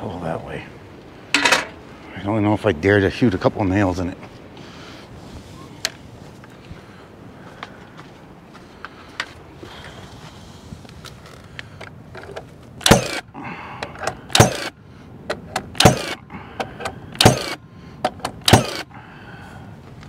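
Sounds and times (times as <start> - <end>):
nail gun firing: 12.8 - 13.2, 14.3 - 14.7, 15.6 - 16.2, 16.8 - 17.6, 18.2 - 18.9.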